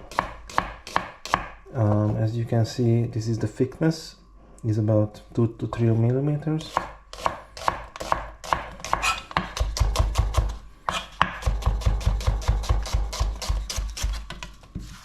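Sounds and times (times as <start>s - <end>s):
knife slicing onions on board: 0.0s - 2.1s, 6.6s - 15.0s.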